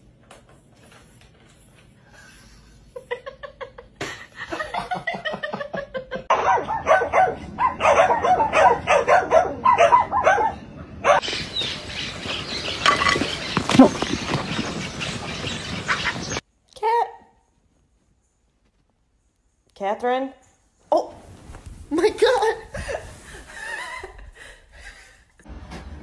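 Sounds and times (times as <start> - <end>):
dog barking: 6.3 - 11.2.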